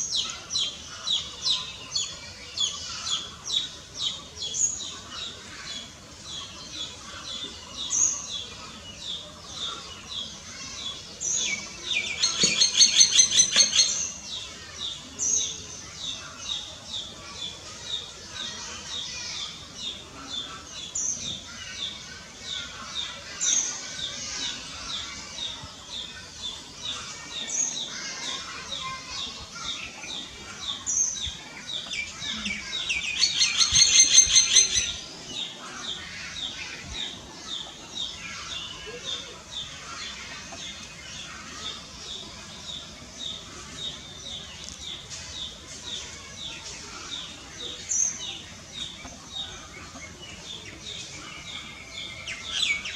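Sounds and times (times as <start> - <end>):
myna rattling chatter: 21.4 - 52.9.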